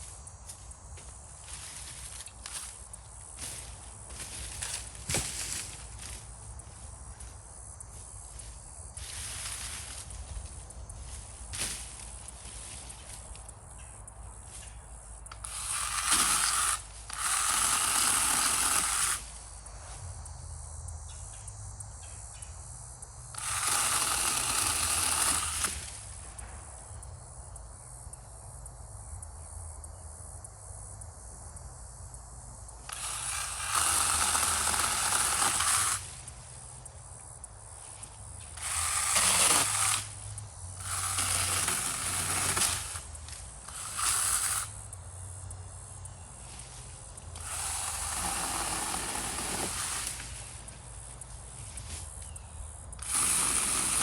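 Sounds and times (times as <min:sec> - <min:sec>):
chainsaw cutting wood: 0:01.0 - 0:06.3, 0:15.3 - 0:19.4, 0:23.3 - 0:26.2, 0:32.8 - 0:36.8, 0:37.8 - 0:44.9, 0:46.8 - 0:52.2, 0:53.0 - 0:54.0.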